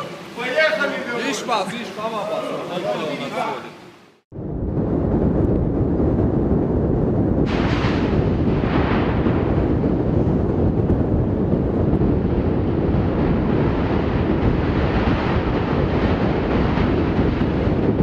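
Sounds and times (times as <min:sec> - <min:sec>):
wind blowing on microphone: 0:04.3 - 0:18.0.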